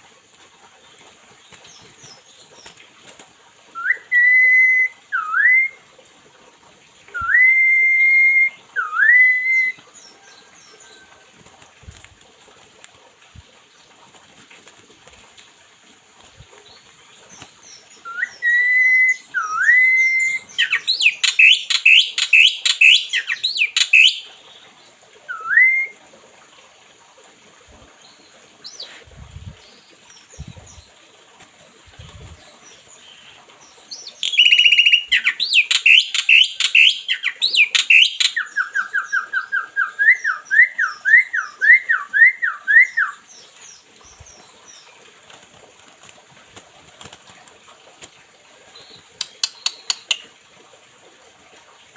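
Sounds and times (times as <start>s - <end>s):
songbird singing whistled song: 3.8s - 5.8s, 7.1s - 9.9s, 18.0s - 24.3s, 25.3s - 26.0s, 33.9s - 43.6s.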